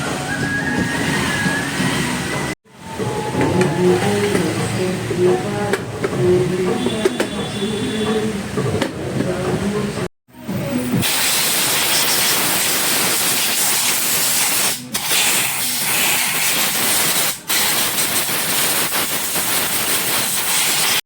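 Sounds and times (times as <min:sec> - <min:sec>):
loud steady hiss: 0:11.0 - 0:21.0.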